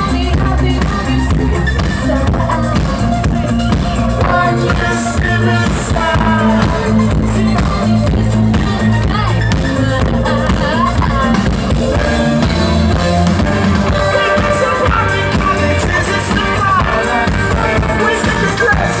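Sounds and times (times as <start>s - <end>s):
rock band playing live: 0.0s - 19.0s
person singing: 3.9s - 19.0s.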